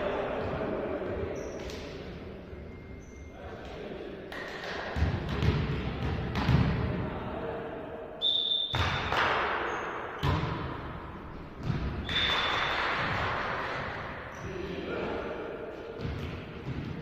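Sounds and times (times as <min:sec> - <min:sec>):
volleyball smacks in a hall: 0:04.3 - 0:07.1, 0:08.4 - 0:17.0.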